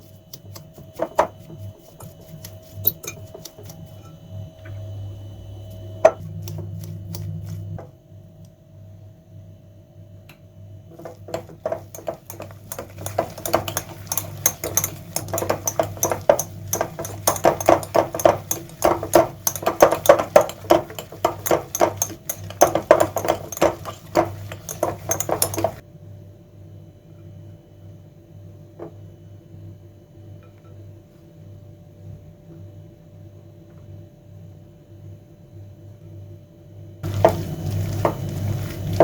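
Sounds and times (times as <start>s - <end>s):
metal utensil scraping a bowl: 0.0s - 4.2s, 10.9s - 25.8s, 37.0s - 39.0s
steady low hum: 0.0s - 26.0s.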